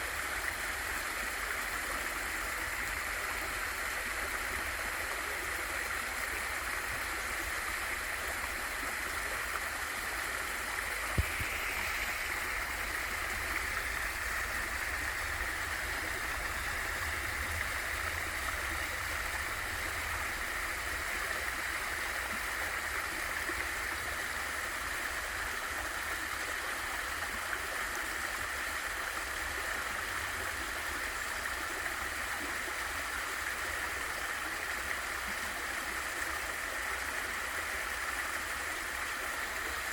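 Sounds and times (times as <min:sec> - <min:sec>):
small waterfall rushing: 0:00.0 - 0:39.9
brief low thump: 0:11.1 - 0:11.6.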